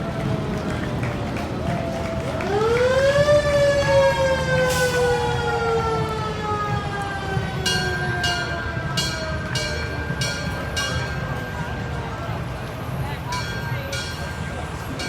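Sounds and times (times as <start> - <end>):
mechanical fire truck siren wailing: 2.2 - 11.9.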